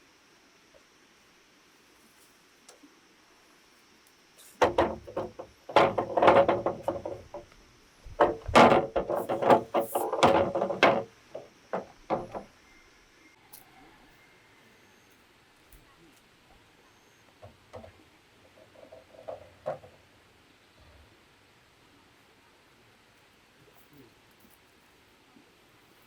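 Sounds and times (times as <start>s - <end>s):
bamboo scraping: 4.4s - 12.6s
bamboo knocking and clattering: 4.6s - 12.6s, 18.6s - 20.0s.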